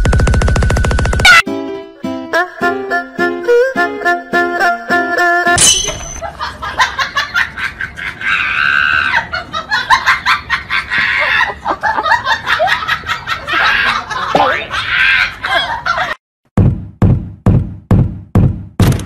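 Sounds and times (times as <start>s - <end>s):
people laughing: 6.2s - 16.2s.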